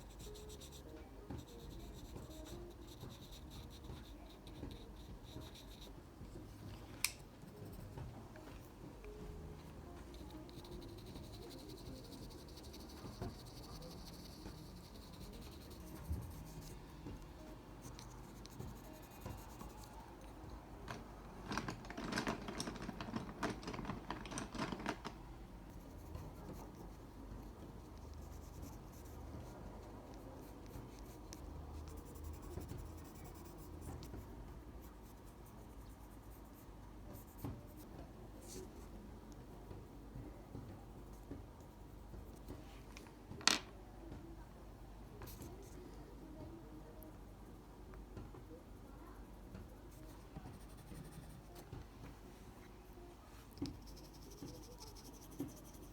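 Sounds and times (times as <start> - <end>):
drawing strokes scratching on paper: 0.0 - 6.4, 9.4 - 20.4, 25.7 - 34.2, 49.8 - 51.8, 52.8 - 55.9.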